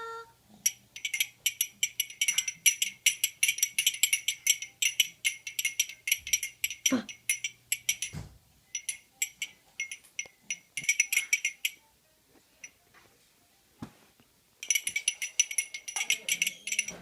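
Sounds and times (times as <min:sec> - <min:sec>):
handheld noisemaker rattling: 0:00.6 - 0:11.8, 0:14.6 - 0:17.0.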